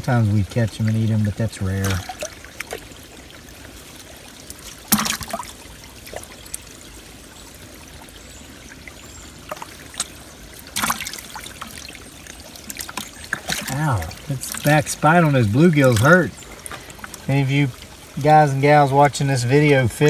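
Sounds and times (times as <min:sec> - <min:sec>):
shallow water trickling: 0:00.0 - 0:20.0
hands splashing in water: 0:04.8 - 0:05.5, 0:09.5 - 0:11.8, 0:12.6 - 0:14.7.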